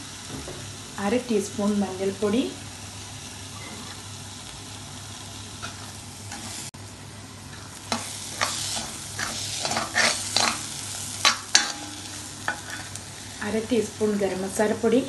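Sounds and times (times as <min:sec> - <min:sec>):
masala sizzling in a pan: 0:00.0 - 0:15.0
steel spoon scraping a pan: 0:05.6 - 0:06.6, 0:07.5 - 0:13.0.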